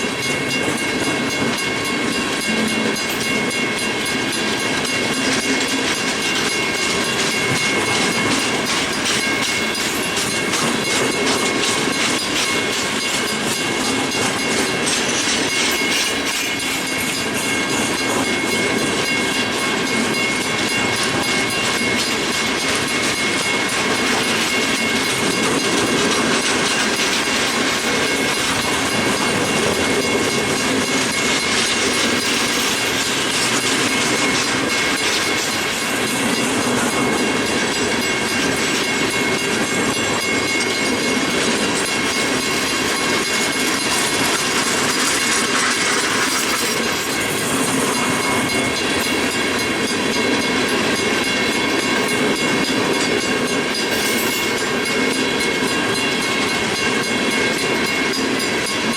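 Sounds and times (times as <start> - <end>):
high whine from train wheels: 0.0 - 58.9
wheels clicking over rail joints: 0.1 - 58.9.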